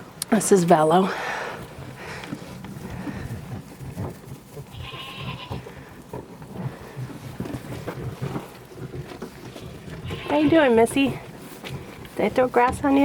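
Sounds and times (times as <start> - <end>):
crunching and rustling: 1.6 - 13.0
livestock bleat: 4.7 - 5.6, 9.6 - 10.8.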